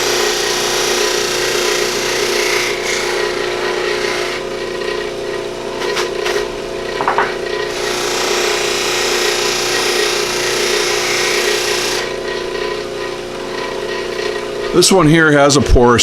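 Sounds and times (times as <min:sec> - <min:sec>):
buffing wheel motor hum: 0:07.4 - 0:14.8.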